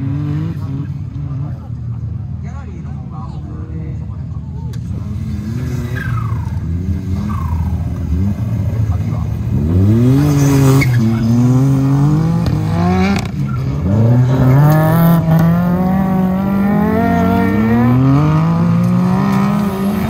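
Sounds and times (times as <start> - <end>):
car engine revving hard: 9.5 - 20.0.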